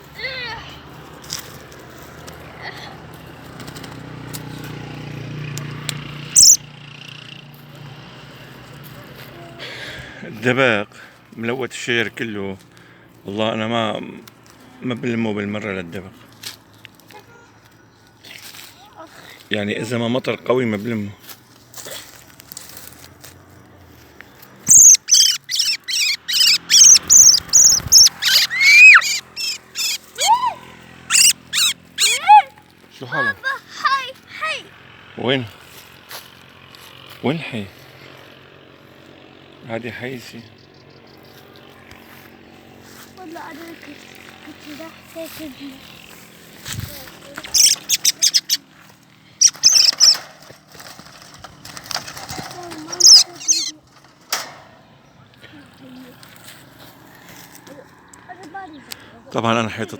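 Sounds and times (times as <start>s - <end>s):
high-pitched bird chirp: 6.3s - 6.6s, 24.6s - 30.4s, 31.1s - 32.4s, 47.4s - 48.6s, 49.4s - 50.2s, 52.9s - 53.8s
songbird calling: 6.3s - 6.6s, 24.6s - 30.4s, 31.0s - 32.4s, 47.4s - 50.2s, 52.9s - 53.8s.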